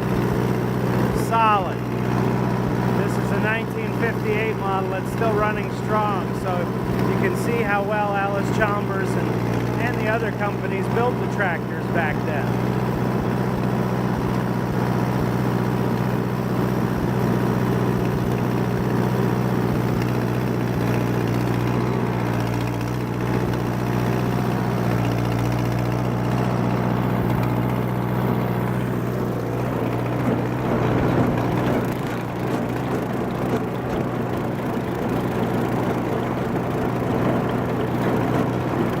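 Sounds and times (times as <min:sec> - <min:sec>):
rotary mower cutting grass: 0:00.0 - 0:39.0
tractor engine running under load: 0:00.0 - 0:39.0.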